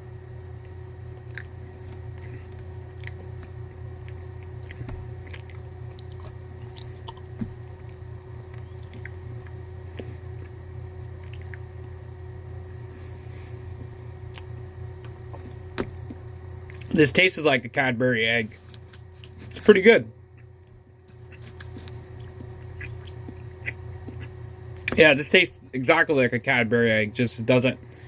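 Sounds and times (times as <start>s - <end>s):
steady low hum: 0.0s - 28.0s
person chewing: 1.1s - 11.7s, 13.1s - 16.9s, 18.4s - 25.0s.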